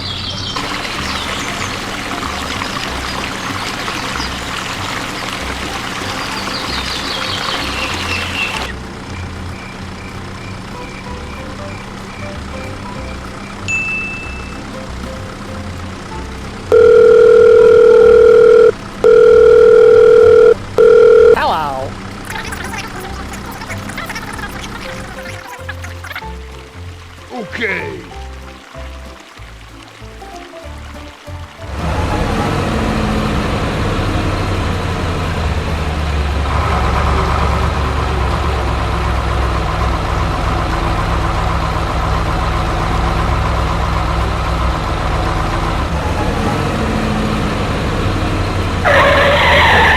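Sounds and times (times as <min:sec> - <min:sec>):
heavy truck engine rumbling: 0:00.0 - 0:49.9
telephone calling tone beeps: 0:16.7 - 0:21.9.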